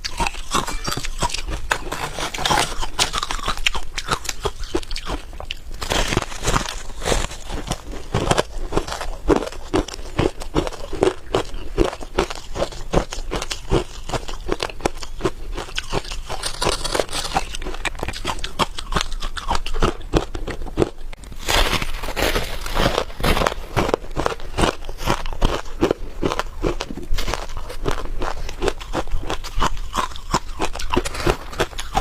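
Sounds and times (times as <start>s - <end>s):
chewing crunchy frost: 0.0s - 32.0s.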